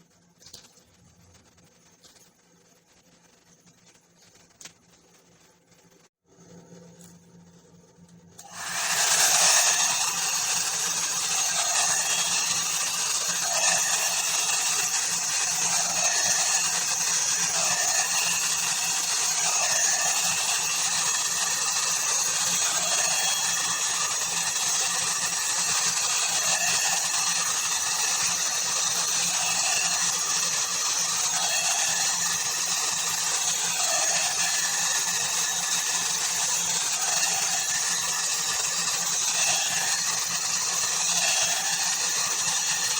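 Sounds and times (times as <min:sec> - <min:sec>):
hair dryer air whoosh: 0:08.4 - 0:27.1.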